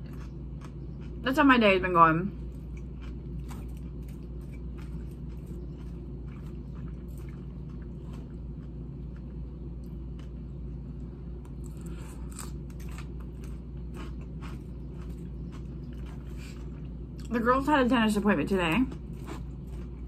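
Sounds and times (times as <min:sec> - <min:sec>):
low hum: 0:00.0 - 0:20.0
wet chewing: 0:02.4 - 0:10.5, 0:11.4 - 0:17.3, 0:18.7 - 0:20.0.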